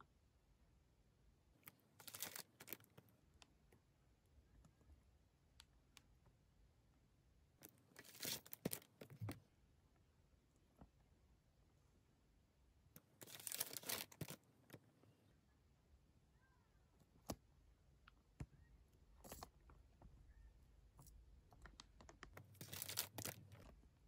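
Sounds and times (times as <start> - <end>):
plastic film crinkling: 2.0 - 3.0, 8.0 - 9.3, 13.2 - 14.4, 22.5 - 23.7.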